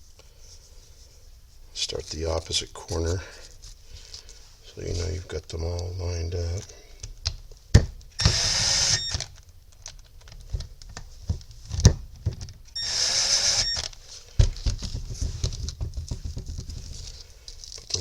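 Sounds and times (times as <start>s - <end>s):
power driver running: 8.2s - 9.3s, 12.8s - 13.9s.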